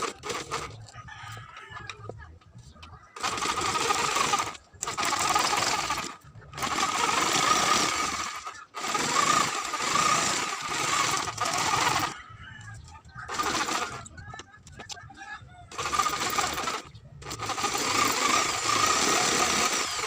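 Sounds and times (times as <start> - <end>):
handheld power tool buzzing: 3.2 - 12.2, 13.3 - 14.0, 15.7 - 20.0.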